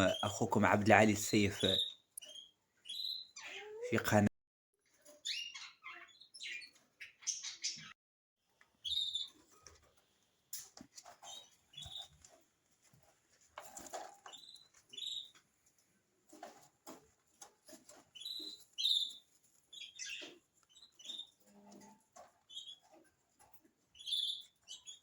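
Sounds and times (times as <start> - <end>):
budgerigars chirping: 1.4 - 3.6, 5.2 - 7.9, 14.3 - 15.3, 18.1 - 21.4, 22.5 - 22.9, 24.0 - 25.0
light clicks and scratches: 9.3 - 25.0.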